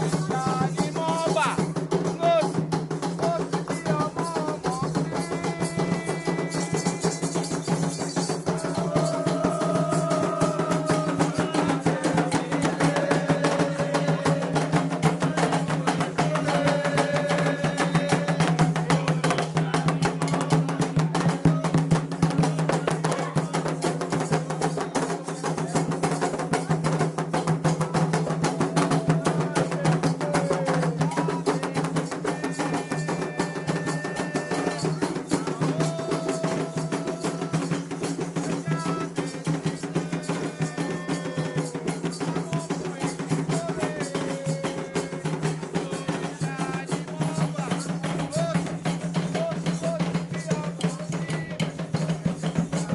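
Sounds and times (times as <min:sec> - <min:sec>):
hand drums playing: 0:00.0 - 0:52.9
voices singing: 0:00.0 - 0:52.9
struck bell: 0:02.6 - 0:12.6.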